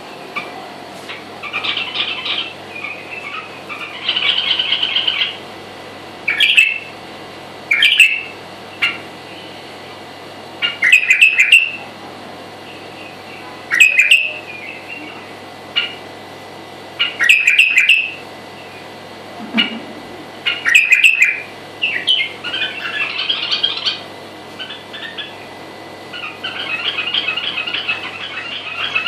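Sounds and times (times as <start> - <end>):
songbird chirps and trills: 1.4 - 5.4, 6.2 - 6.9, 7.6 - 9.6, 10.6 - 11.8, 12.6 - 16.0, 16.9 - 18.9, 20.4 - 29.0.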